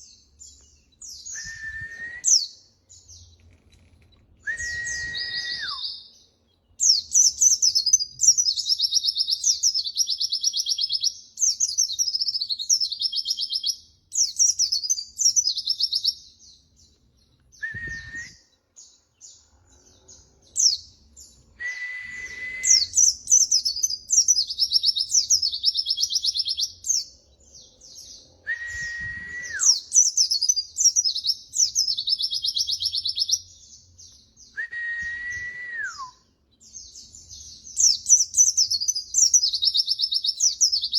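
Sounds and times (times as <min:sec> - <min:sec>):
bird twittering and trilling: 0:00.0 - 0:34.6, 0:36.4 - 0:40.9.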